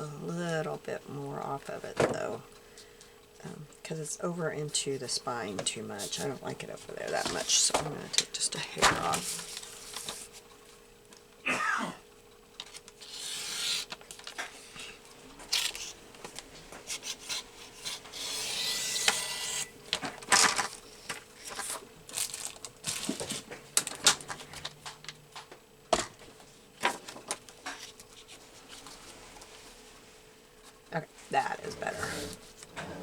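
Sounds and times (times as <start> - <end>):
faint steady hum: 0.0 - 33.0
paper rustling and sliding: 8.8 - 10.5, 20.0 - 24.5
paper trimmer blade scraping: 13.0 - 14.0, 16.8 - 19.7.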